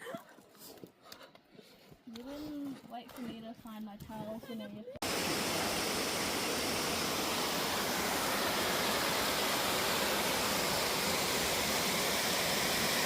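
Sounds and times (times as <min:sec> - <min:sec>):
steady rushing hiss: 0:05.0 - 0:13.0.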